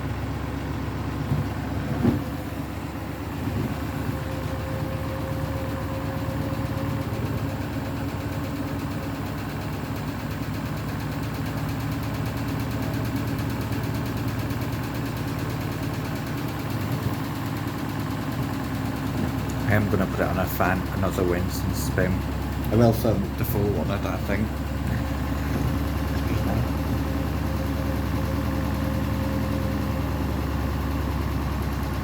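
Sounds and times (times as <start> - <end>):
washing machine spinning: 0.0 - 32.0.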